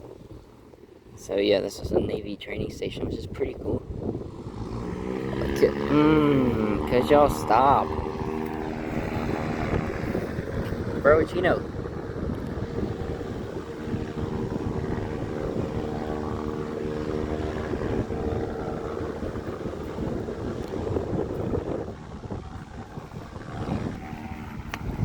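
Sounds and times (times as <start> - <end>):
propeller airplane engine droning: 0.0 - 25.0
wind rumbling on microphone: 0.0 - 25.0.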